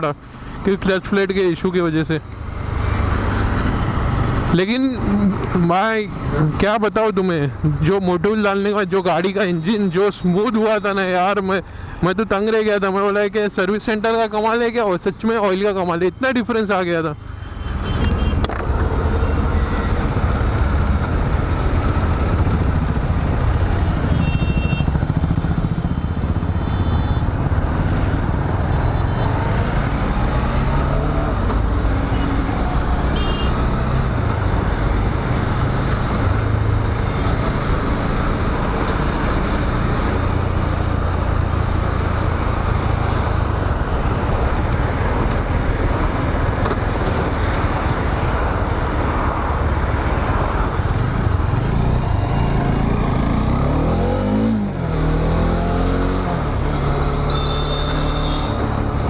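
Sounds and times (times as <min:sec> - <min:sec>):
wind and road noise: 0:00.0 - 0:59.0
motorcycle engine: 0:17.9 - 0:48.0, 0:49.4 - 0:59.0.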